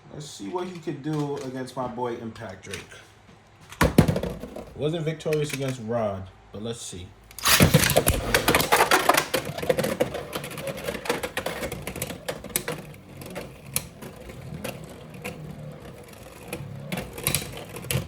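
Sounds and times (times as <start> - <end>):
spinning tops whirring: 7.4 - 18.0.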